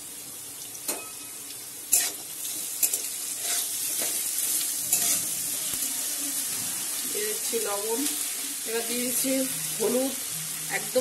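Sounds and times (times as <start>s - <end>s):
food sizzling in hot oil: 0.0s - 11.0s
metal spatula scraping a pan: 1.9s - 5.7s.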